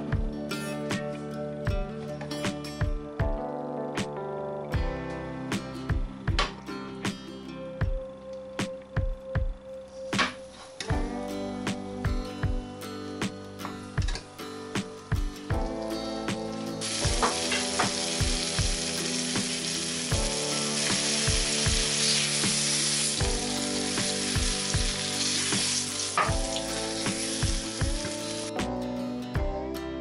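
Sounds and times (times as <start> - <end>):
light background music plucked notes: 0.0 - 30.0
meat sizzling in frying pan: 16.7 - 28.5.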